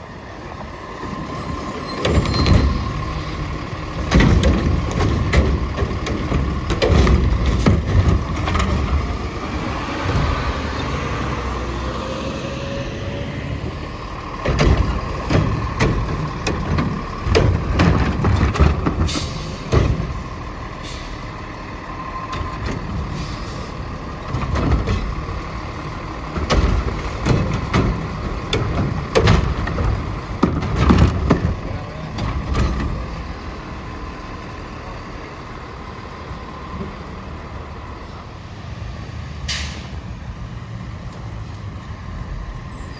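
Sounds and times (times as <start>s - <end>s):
diesel engine running: 0.0s - 42.9s
metal clanks and bangs: 1.9s - 9.4s, 13.7s - 21.2s, 22.2s - 33.4s.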